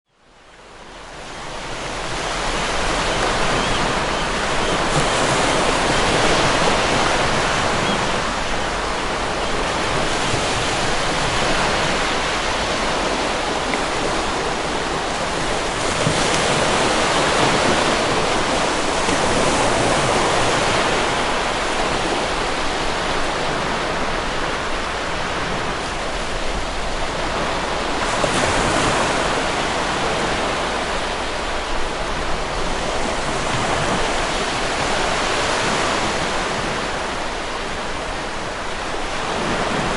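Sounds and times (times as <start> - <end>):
waves breaking: 0.6 - 39.9.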